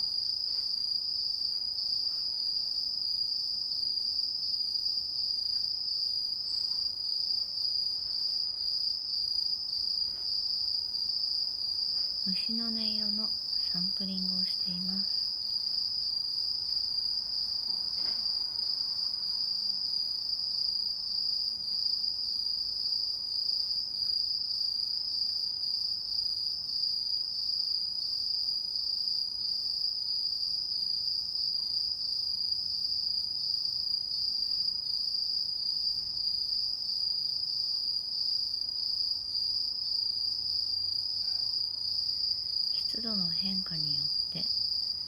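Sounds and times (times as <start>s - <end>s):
crickets trilling: 4.5s - 30.4s.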